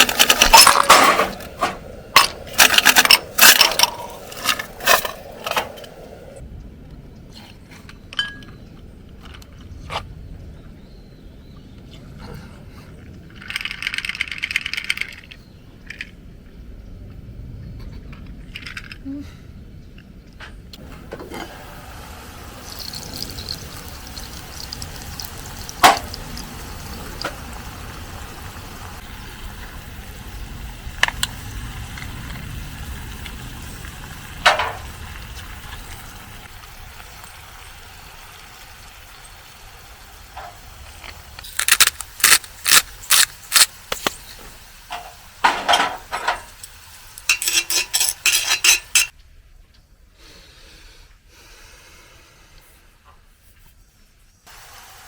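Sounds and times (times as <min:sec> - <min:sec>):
metal cookware clinking: 0:00.0 - 0:05.9, 0:22.6 - 0:26.2, 0:44.9 - 0:49.1.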